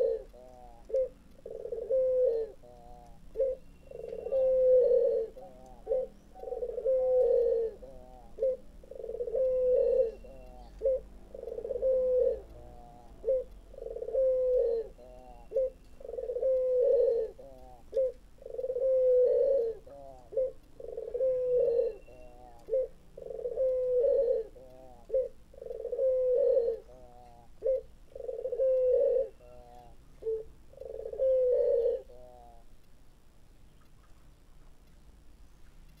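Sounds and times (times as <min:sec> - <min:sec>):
dove cooing: 0:00.0 - 0:32.8.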